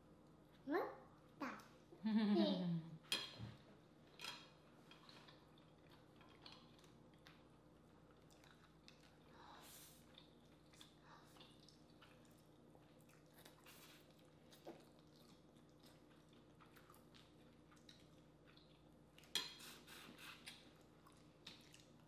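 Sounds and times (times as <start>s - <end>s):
low steady hum: 0.0s - 22.0s
soft chewing: 3.9s - 22.0s.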